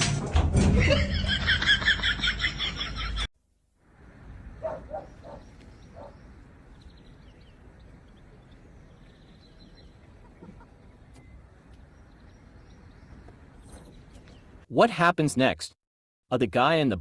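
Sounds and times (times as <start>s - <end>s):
outdoor background noise: 0.0s - 15.3s
faint bird chirps: 4.1s - 14.5s.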